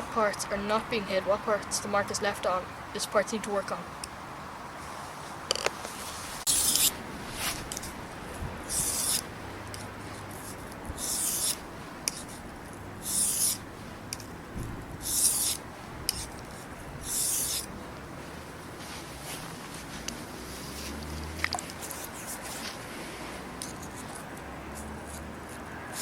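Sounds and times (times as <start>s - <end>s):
knife scraping on whetstone: 6.4s - 7.8s, 8.7s - 9.2s, 10.4s - 12.4s, 13.0s - 13.6s, 15.0s - 17.7s.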